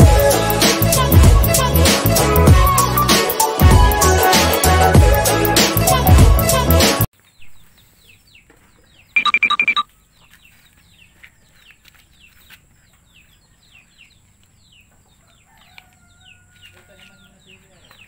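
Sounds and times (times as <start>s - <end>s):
birds chirping faintly: 7.2s - 18.0s
rapid high-pitched bird notes: 9.2s - 9.8s.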